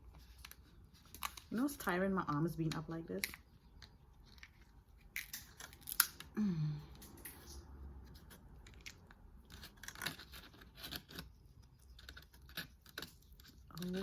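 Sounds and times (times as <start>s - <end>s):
crab shell cracking: 3.2s - 6.3s.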